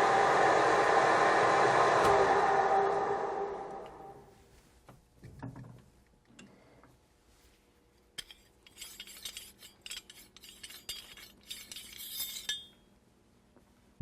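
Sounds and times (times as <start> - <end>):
faint machine hum: 0.0 - 14.0
cutting tool scraping steel: 8.2 - 12.8.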